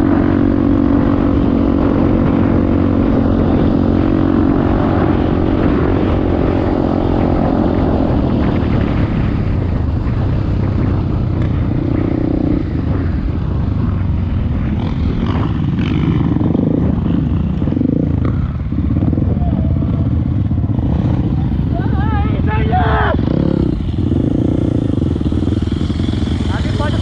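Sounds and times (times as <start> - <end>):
dirt bike engine revving: 14.6 - 27.0.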